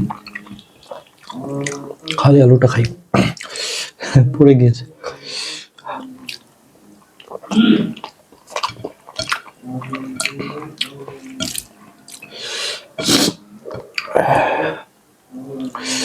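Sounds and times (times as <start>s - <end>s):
lip smacks and chewing: 0.0s - 2.2s, 2.8s - 3.6s, 5.8s - 12.4s
slurping: 0.0s - 4.2s, 5.0s - 16.0s.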